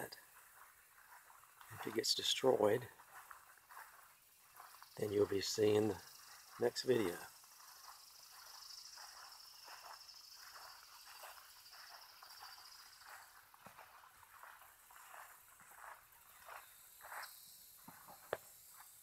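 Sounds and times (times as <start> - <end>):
insect chorus: 0.0 - 19.0
soft rustles: 0.1 - 6.7.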